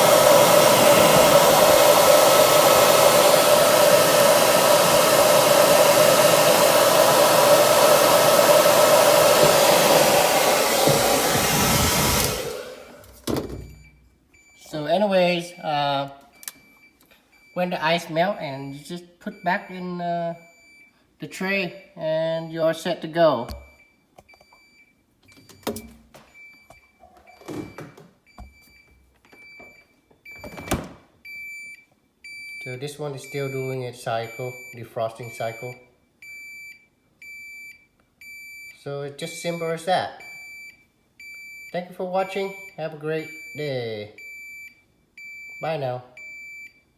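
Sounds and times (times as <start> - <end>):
hair dryer blowing: 0.0 - 13.2
refrigerator beeping: 23.5 - 33.7.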